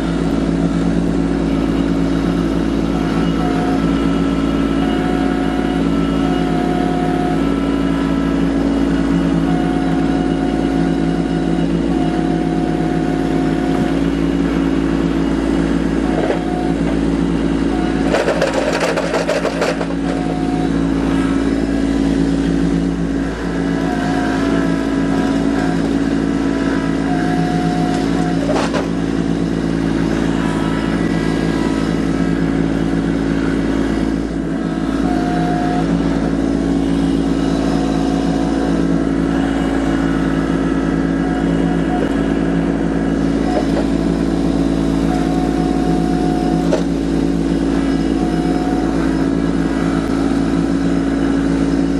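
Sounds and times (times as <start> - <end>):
tractor diesel engine running: 0.0 - 51.9
clatter: 17.9 - 20.4, 27.9 - 29.0.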